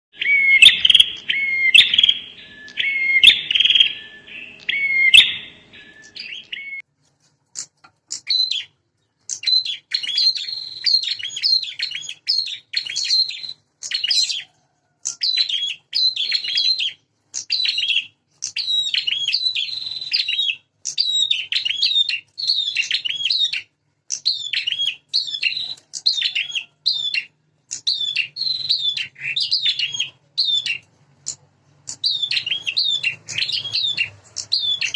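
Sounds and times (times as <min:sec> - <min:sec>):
bird high repeated calls: 0:00.1 - 0:06.8, 0:07.6 - 0:34.9.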